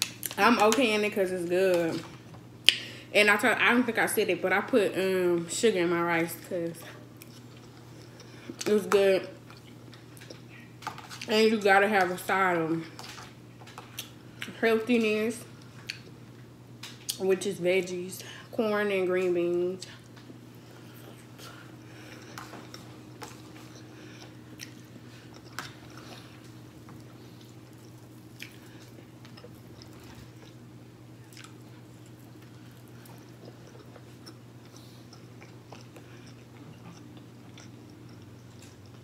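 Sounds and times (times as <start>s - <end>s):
person chewing food: 7.0s - 11.3s, 12.9s - 14.5s, 19.9s - 39.0s.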